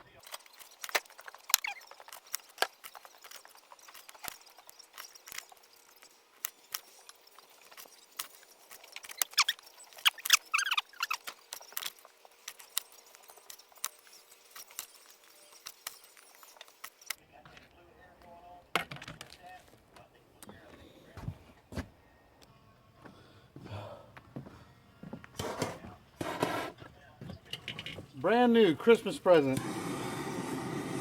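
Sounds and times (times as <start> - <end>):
short squeaks: 0.3 - 17.2.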